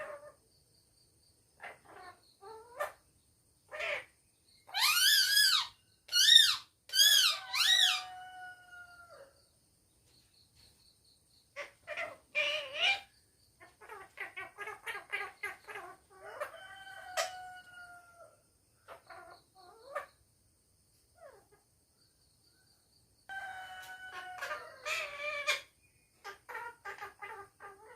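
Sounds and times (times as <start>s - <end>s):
parrot calling and squawking: 4.7s - 8.3s, 11.6s - 17.6s, 23.3s - 27.9s.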